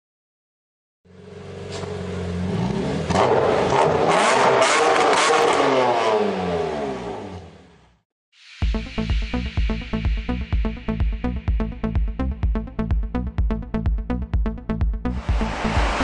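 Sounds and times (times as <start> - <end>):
car engine full-throttle revving: 1.1 - 8.0, 15.0 - 16.0
electronic music: 8.4 - 16.0.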